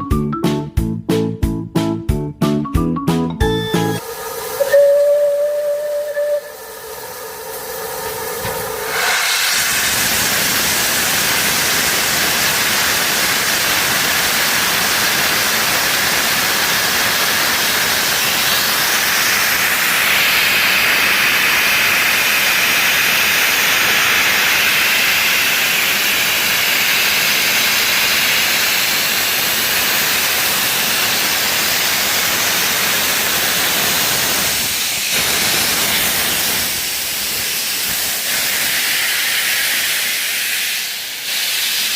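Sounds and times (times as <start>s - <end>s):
steam locomotive hissing steam: 3.5s - 41.9s.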